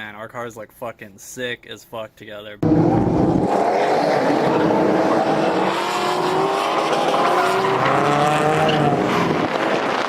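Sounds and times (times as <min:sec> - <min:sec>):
car engines revving: 0:02.6 - 0:10.0.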